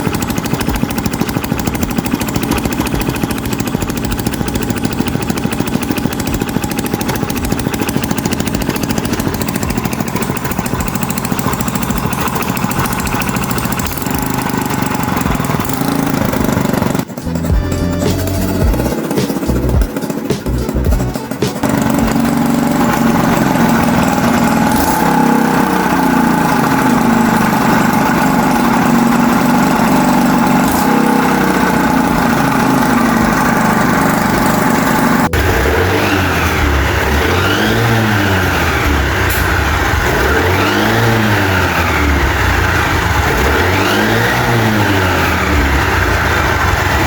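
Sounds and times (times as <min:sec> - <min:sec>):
scooter engine idling: 0:00.0 - 0:47.0
scooter engine revving: 0:00.0 - 0:47.0.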